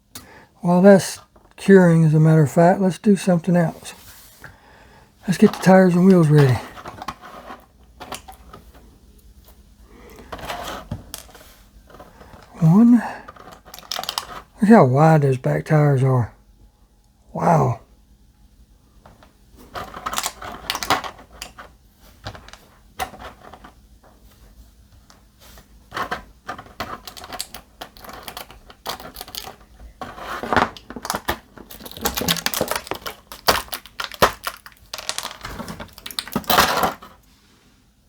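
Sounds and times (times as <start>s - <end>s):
small parts clicking and rattling: 13.3s - 14.5s, 19.7s - 23.7s, 25.9s - 37.2s.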